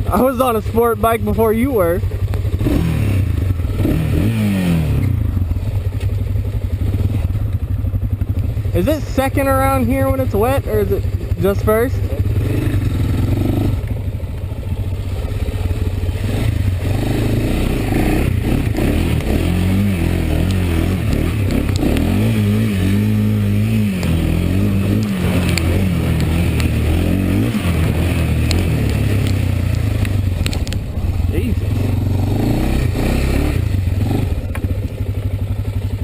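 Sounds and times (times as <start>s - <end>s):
atv engine running: 0.0s - 36.0s
clicks and clatter: 20.4s - 22.1s, 24.9s - 26.8s, 27.8s - 30.9s.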